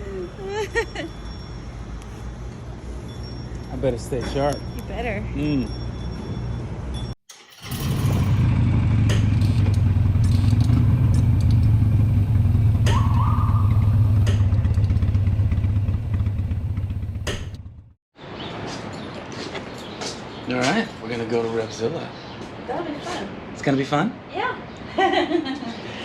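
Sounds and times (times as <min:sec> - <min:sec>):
motorcycle engine rumbling: 0:07.3 - 0:18.0.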